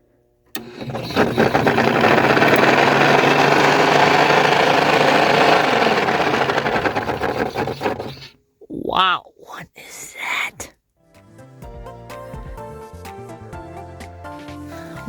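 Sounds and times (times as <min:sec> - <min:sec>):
furnace motor running with rubbing noise: 0:00.6 - 0:08.4.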